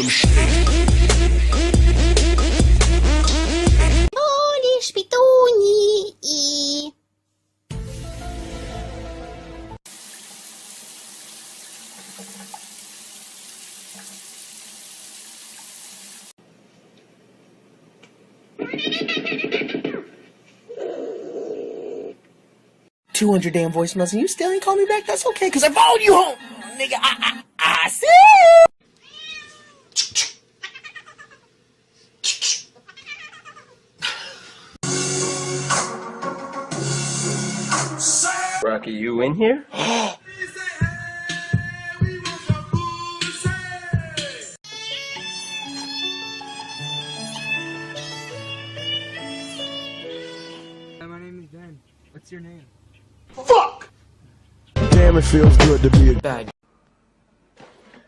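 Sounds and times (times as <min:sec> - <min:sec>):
music: 0:00.0 - 0:04.1, 0:07.7 - 0:09.8, 0:34.8 - 0:38.6, 0:40.5 - 0:51.0, 0:54.8 - 0:56.5
tap running into sink: 0:11.9 - 0:13.0
cat meowing loudly: 0:28.2 - 0:29.9
cat meowing: 0:29.0 - 0:29.9, 0:30.6 - 0:31.4, 0:32.9 - 0:33.7.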